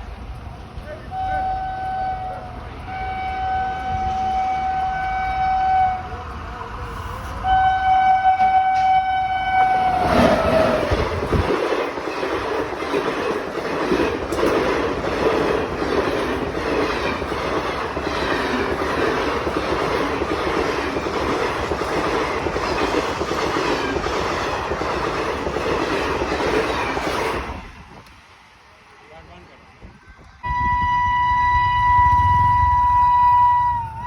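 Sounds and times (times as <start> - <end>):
train wheels clattering over rails: 8.3 - 28.3.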